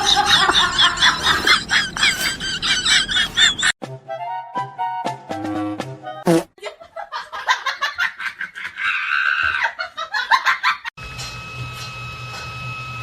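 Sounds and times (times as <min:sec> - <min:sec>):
person laughing hard: 0:00.0 - 0:03.8.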